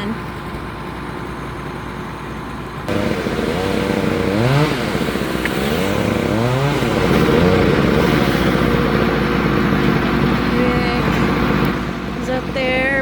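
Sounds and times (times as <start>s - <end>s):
chainsaw revving: 2.9s - 13.0s.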